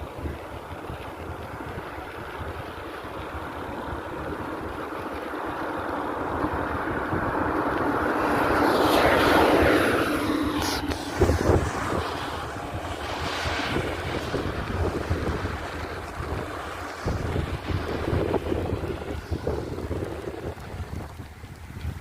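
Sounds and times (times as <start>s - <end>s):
wind noise on microphone: 0.0s - 22.0s
vehicle engine passing by: 3.5s - 20.8s.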